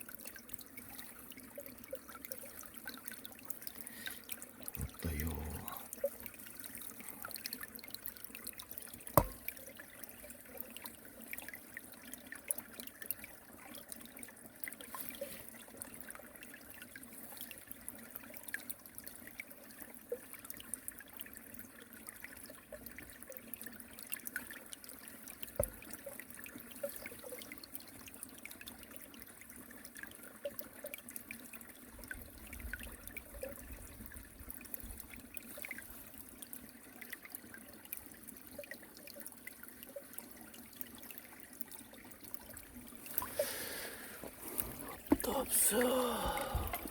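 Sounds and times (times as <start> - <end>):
water trickling over weir: 0.0 - 46.9
sharp knock: 9.2 - 9.4.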